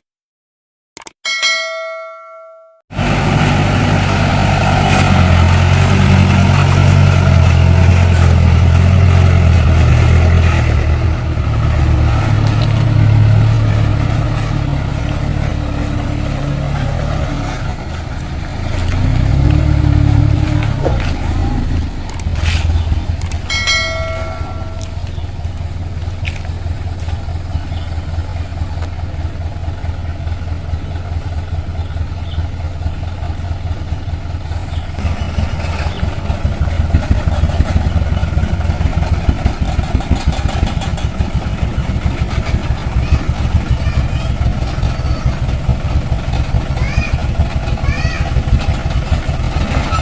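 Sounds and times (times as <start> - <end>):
diesel truck engine running: 2.9 - 50.0
brief pitched tone: 23.5 - 25.3.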